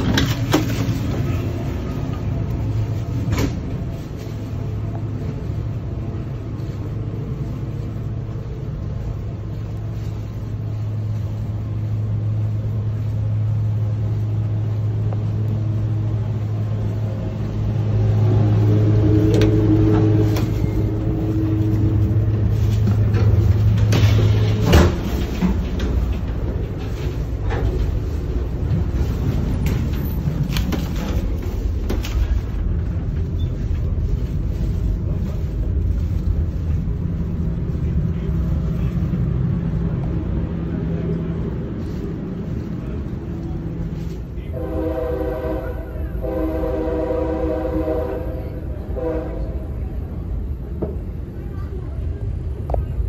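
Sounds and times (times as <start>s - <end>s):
train hum inside coach: 0.0s - 53.0s.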